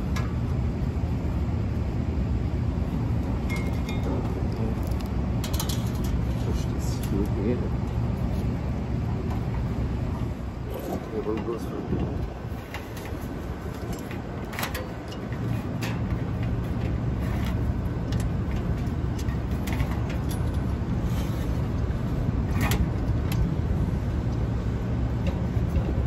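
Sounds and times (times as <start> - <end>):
low machinery rumble and hum: 0.0 - 26.0.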